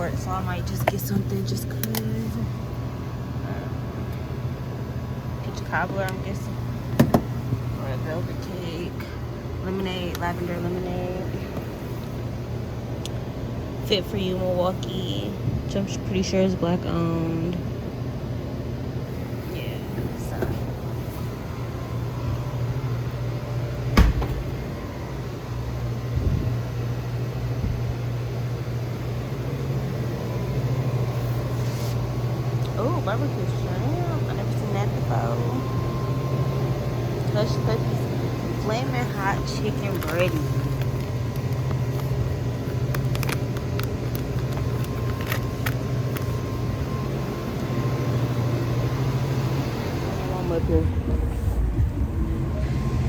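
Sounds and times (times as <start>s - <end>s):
low mechanical hum: 0.0s - 53.0s.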